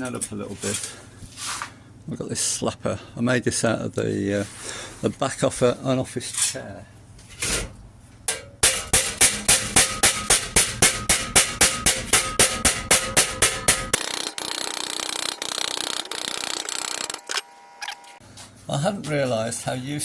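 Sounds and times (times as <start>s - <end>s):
body slapper striking sheet steel: 8.3s - 14.0s.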